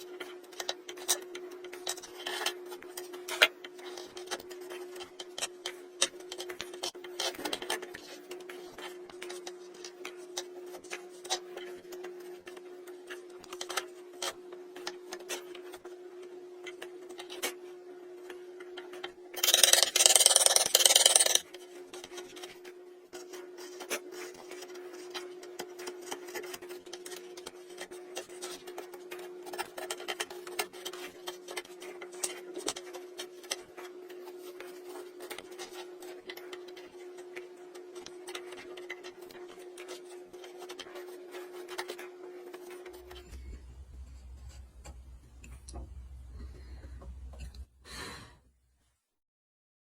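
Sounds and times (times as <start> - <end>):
steady hum: 42.9 - 48.5
chisel cutting wood: 43.0 - 47.8.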